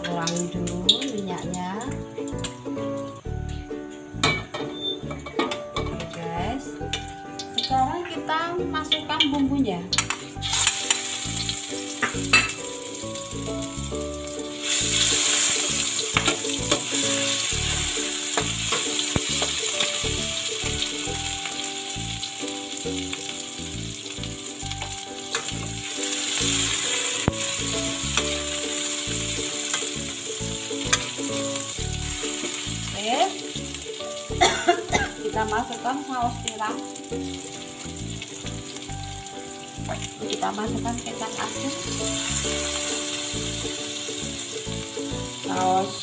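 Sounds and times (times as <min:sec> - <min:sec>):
paste sizzling in hot oil: 0:00.0 - 0:46.0
metal spatula scraping a pan: 0:10.0 - 0:11.2, 0:30.8 - 0:31.7.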